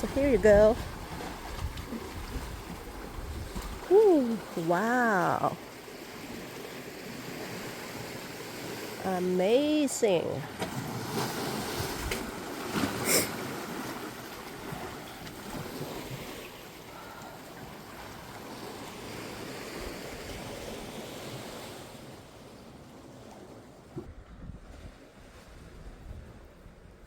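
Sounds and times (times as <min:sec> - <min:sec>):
wind buffeting microphone: 0:00.0 - 0:04.4, 0:24.0 - 0:27.0
surf washing on a beach: 0:00.0 - 0:23.4.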